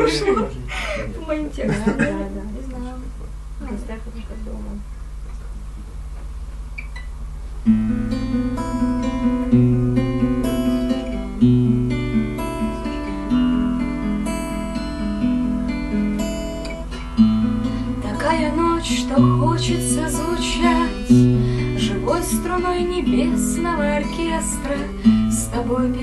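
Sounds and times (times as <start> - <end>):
low steady hum: 0.0 - 26.0
acoustic guitar strumming chords: 7.6 - 26.0.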